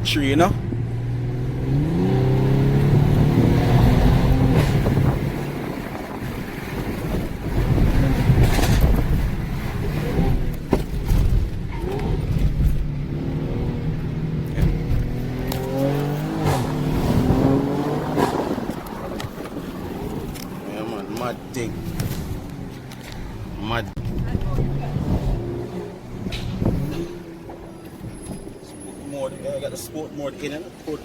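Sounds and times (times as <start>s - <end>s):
car engine accelerating: 0.0s - 31.0s
road noise: 0.0s - 31.0s.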